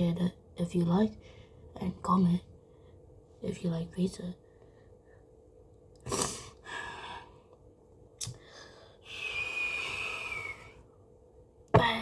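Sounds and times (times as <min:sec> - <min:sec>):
person breathing: 0:06.5 - 0:07.5, 0:08.4 - 0:10.8.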